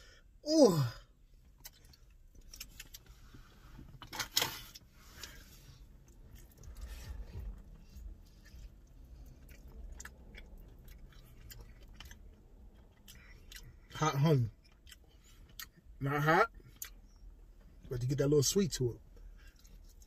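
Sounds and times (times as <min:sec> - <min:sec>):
person chewing: 0:01.4 - 0:15.9, 0:16.7 - 0:17.1.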